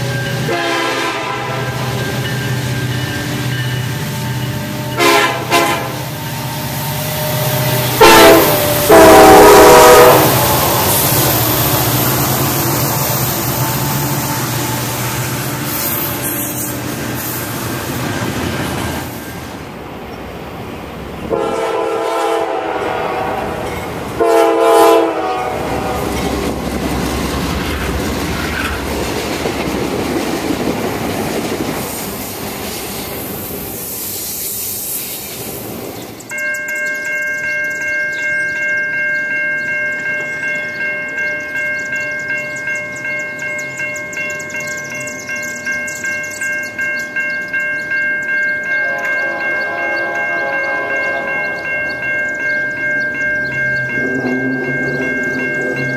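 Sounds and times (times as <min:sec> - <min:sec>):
crossing bell ringing: 0:00.0 - 0:19.8, 0:21.2 - 0:32.0, 0:36.0 - 0:55.9
freight train rumbling past: 0:00.0 - 0:55.9
train air horn blasts: 0:00.4 - 0:02.0, 0:04.6 - 0:11.8, 0:12.6 - 0:17.5, 0:21.3 - 0:26.4, 0:48.8 - 0:51.6.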